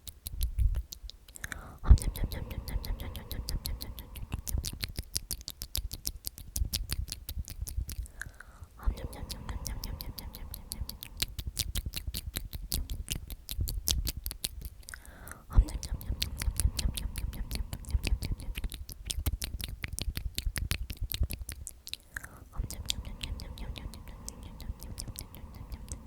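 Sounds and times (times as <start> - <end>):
wet mouth clicks and lip smacks: 0.0 - 26.0
person whispering: 1.4 - 5.0, 8.7 - 11.5, 14.9 - 19.0, 22.2 - 26.0.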